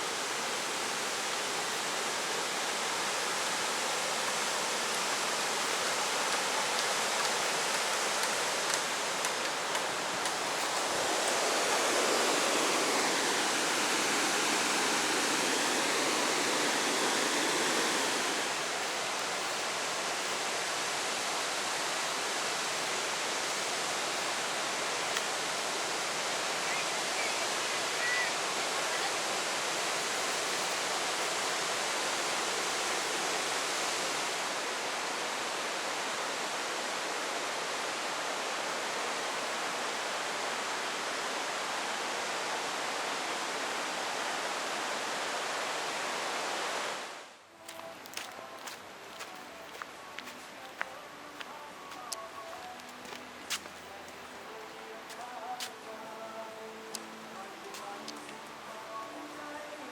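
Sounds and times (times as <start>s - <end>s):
waterfall rushing: 0.0s - 47.3s.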